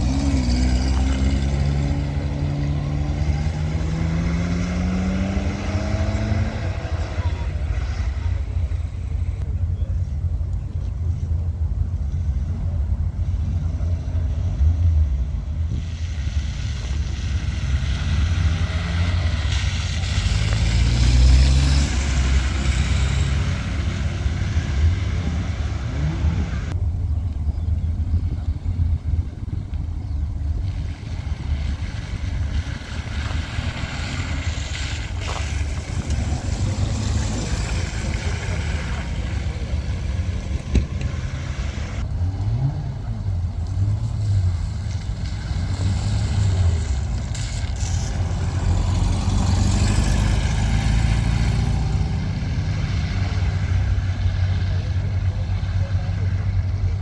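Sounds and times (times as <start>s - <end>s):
engine revving: 0.0s - 8.8s, 16.7s - 26.8s, 31.0s - 57.0s
car engines rumbling: 0.0s - 57.0s.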